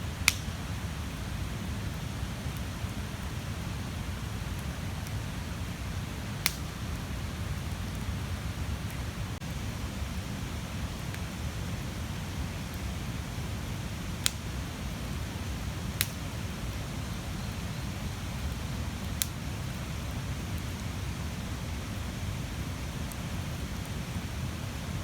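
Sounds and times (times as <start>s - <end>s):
bonfire flames rumbling: 0.0s - 25.0s
burning wood popping: 0.2s - 0.8s, 6.4s - 6.9s, 12.6s - 20.9s.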